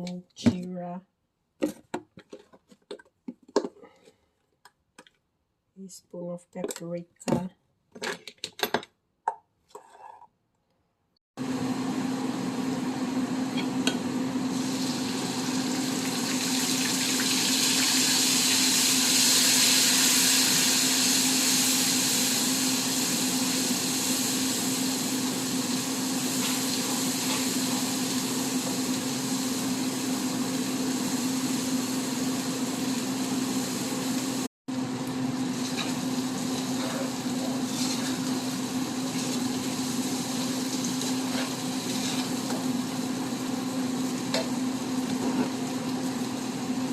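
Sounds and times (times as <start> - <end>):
spices sizzling in hot oil: 13.4 - 34.5, 35.2 - 46.9.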